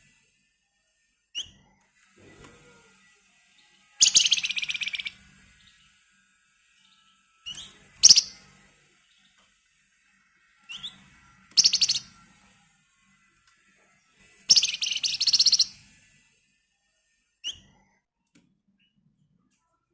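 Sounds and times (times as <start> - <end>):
bird rattling trill: 4.0 - 5.2, 7.5 - 8.4, 11.6 - 12.1, 14.5 - 15.8.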